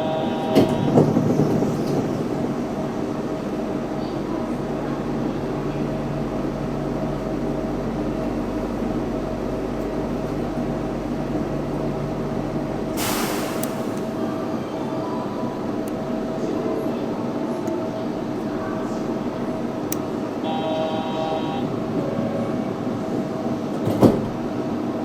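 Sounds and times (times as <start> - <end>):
train hum: 0.0 - 25.0
short hiss: 13.0 - 14.0
constant whine: 19.3 - 21.9.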